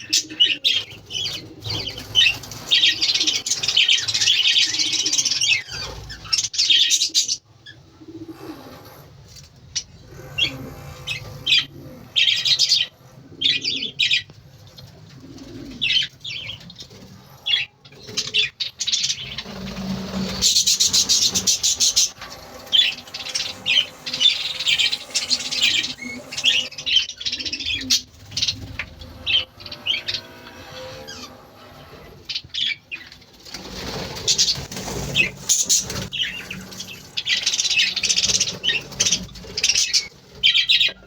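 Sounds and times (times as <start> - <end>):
budgerigars chirping: 18.3 - 31.3
rapid wing flapping: 19.1 - 26.9, 33.2 - 40.5.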